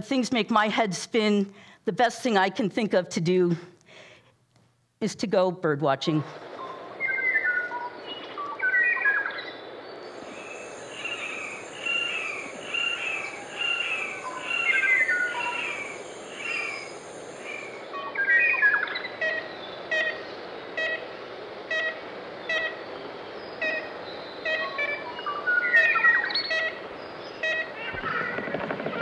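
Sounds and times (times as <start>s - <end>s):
birds chirping and singing: 7.0s - 20.4s, 22.7s - 28.6s
high steady buzz: 10.0s - 18.2s
bird repeating short call: 10.2s - 20.2s.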